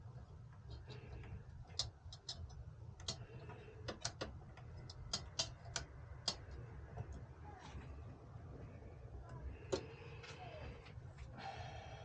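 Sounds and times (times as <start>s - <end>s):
low steady hum: 0.0s - 12.0s
light clicks and taps: 0.1s - 7.3s.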